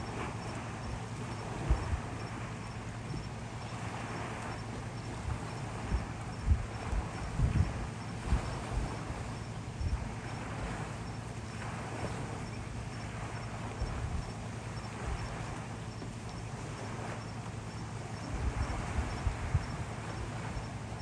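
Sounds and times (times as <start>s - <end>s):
strong wind blowing: 0.0s - 2.5s, 5.2s - 10.8s, 18.2s - 20.6s
wind buffeting microphone: 0.0s - 21.0s.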